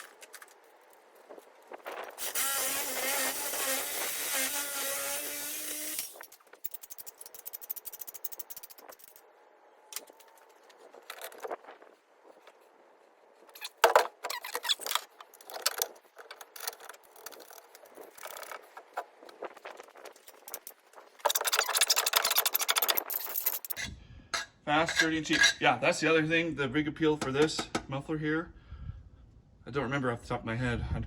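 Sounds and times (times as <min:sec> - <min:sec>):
small metal parts clinking: 0:05.6 - 0:09.2, 0:20.1 - 0:25.6.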